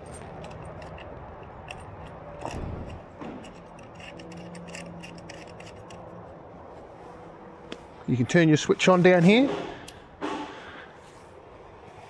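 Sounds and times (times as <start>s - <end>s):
small clicks and rubbing: 0.0s - 6.1s.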